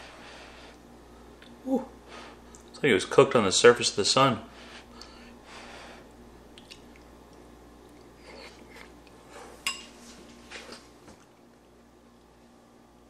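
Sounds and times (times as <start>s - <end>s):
person chewing: 6.0s - 9.7s.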